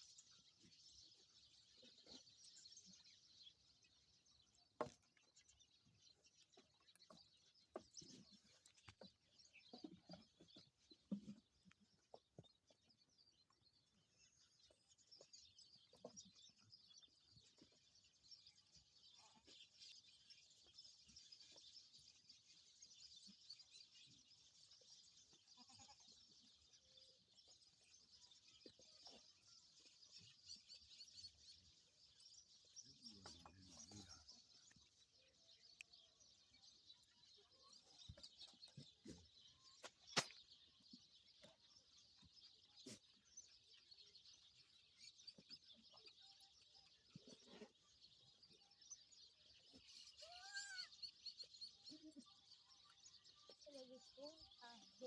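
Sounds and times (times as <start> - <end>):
goat kids bleating: 25.4 - 26.1.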